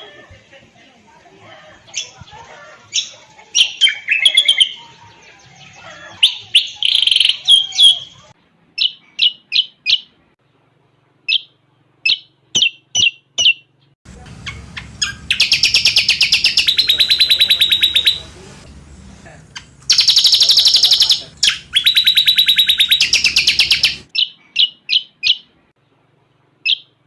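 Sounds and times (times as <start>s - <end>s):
bird chirping and whistling: 6.2s - 8.2s, 8.8s - 10.1s, 11.3s - 11.5s, 12.1s - 13.7s, 14.4s - 18.3s, 19.9s - 25.5s, 26.6s - 26.9s
bird rattling trill: 14.4s - 18.2s, 19.6s - 24.8s.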